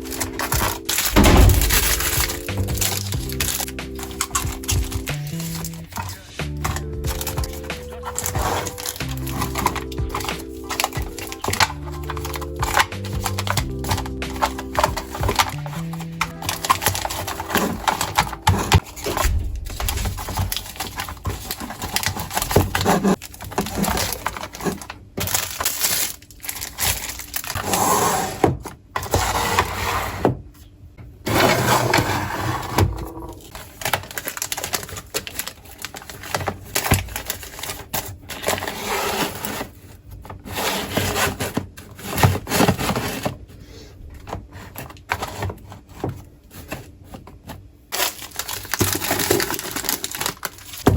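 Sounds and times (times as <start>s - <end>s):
containers and lids clicking: 0.0s - 19.2s
packaging rustling: 0.0s - 27.8s, 31.4s - 43.5s, 44.2s - 50.9s.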